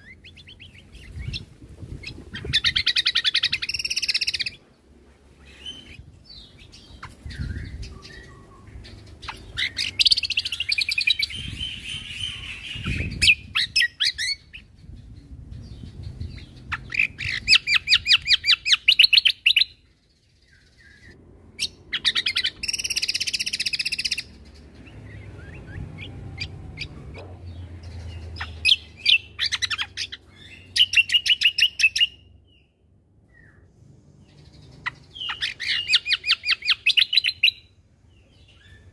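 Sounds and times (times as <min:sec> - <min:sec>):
songbird singing rapid high notes: 0:00.0 - 0:04.6, 0:05.5 - 0:19.8, 0:21.6 - 0:26.9
bird chirps: 0:00.0 - 0:04.8, 0:05.4 - 0:38.9.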